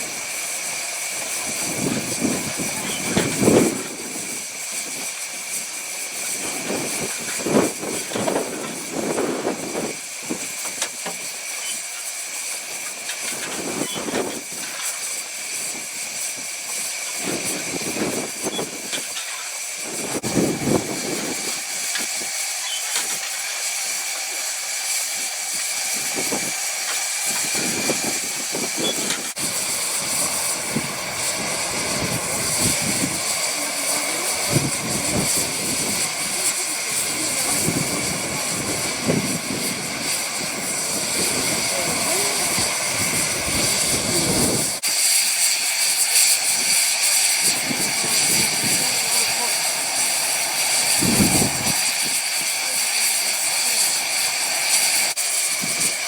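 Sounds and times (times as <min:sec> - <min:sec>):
steam train hissing: 0:00.0 - 0:56.0
wind buffeting microphone: 0:01.4 - 0:04.2, 0:19.9 - 0:22.3, 0:27.2 - 0:44.8, 0:46.4 - 0:53.2.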